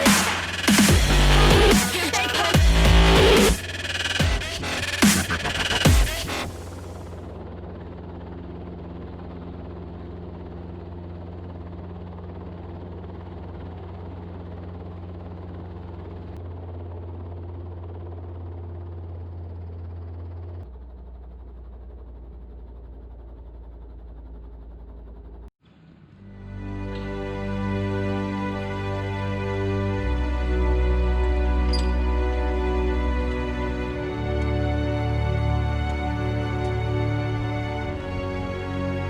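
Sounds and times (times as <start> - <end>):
helicopter low drone: 0.0 - 39.0.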